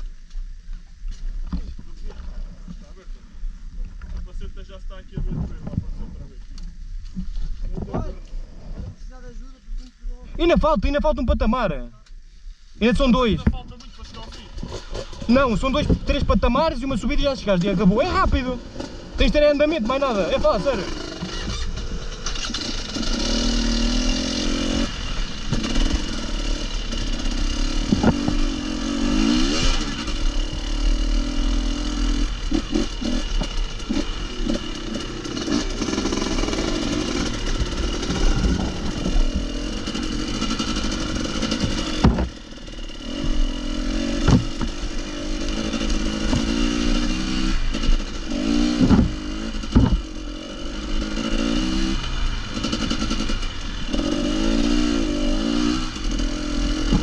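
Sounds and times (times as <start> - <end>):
motorcycle engine revving: 13.2 - 57.0
sharp knocks: 27.8 - 28.4, 41.5 - 42.4, 44.1 - 44.8, 46.2 - 46.8, 48.8 - 50.1.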